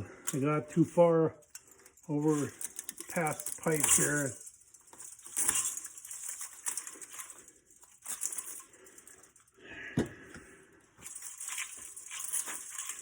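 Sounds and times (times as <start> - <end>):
metal fins crinkling and tearing: 1.4 - 9.5, 11.0 - 13.0.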